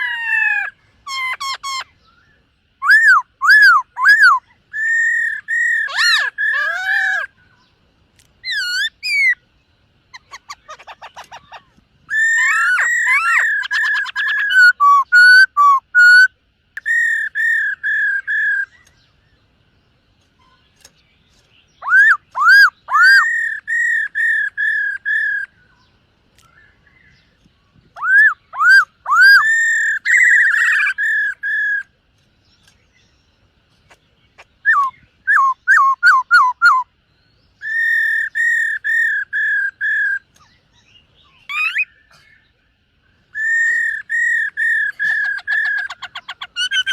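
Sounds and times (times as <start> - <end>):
bird singing whistled phrases: 1.1 - 7.4, 8.4 - 9.4, 10.1 - 19.0, 21.8 - 25.8, 28.0 - 31.9, 34.6 - 36.9, 37.6 - 40.2, 40.8 - 42.4, 43.3 - 46.9.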